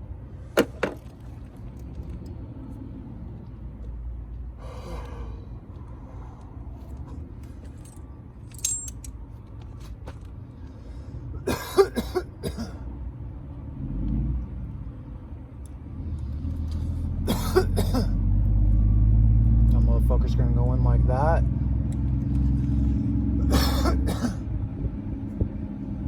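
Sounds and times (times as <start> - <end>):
low rumble of vehicle noise: 0.0 - 26.0
man coughing: 11.4 - 12.8, 17.3 - 18.2, 23.4 - 24.4.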